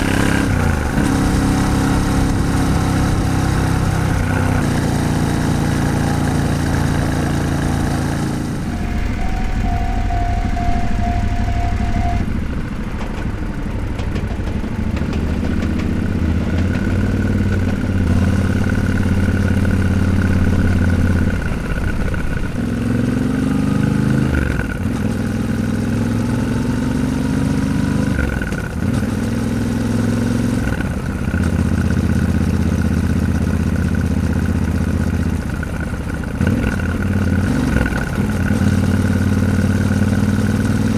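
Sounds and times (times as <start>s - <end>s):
motorcycle engine shifting gears: 0.0s - 40.9s.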